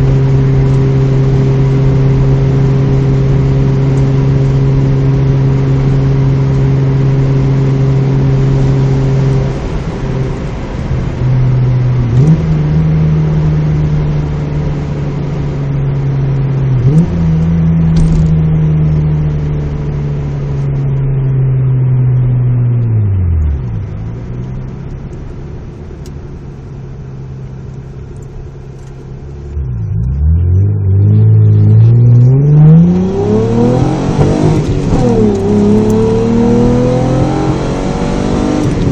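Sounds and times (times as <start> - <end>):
car engine droning inside cabin: 0.0 - 38.9.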